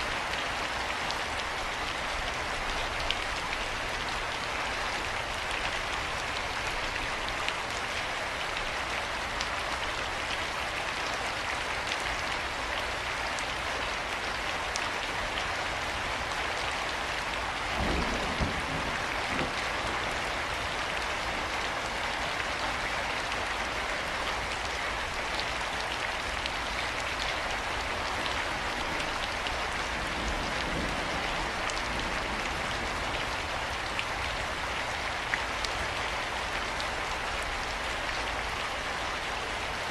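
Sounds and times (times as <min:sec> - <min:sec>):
steady rain: 0:00.0 - 0:39.9
raindrop ticks: 0:17.8 - 0:20.0.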